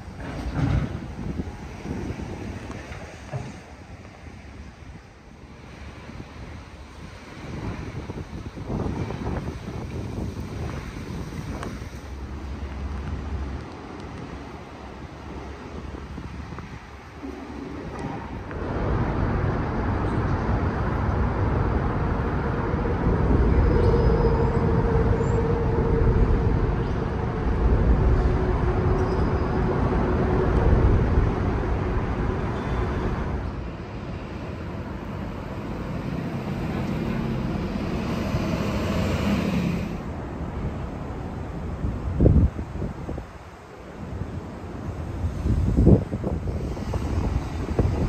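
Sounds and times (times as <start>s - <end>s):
traffic rumble and road hiss: 0.0s - 48.0s.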